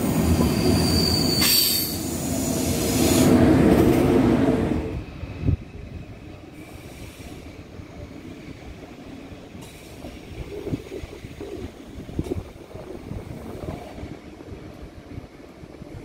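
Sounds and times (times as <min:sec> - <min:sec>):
train rumbling on rails: 0:00.0 - 0:16.0
faint high wheel squeal: 0:00.4 - 0:02.2.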